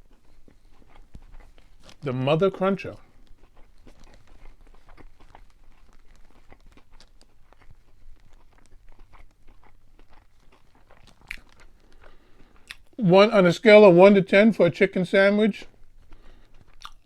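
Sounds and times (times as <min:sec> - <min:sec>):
chewing crispy food: 0:00.0 - 0:14.5, 0:15.6 - 0:17.0
wet mouth clicks: 0:16.7 - 0:17.0.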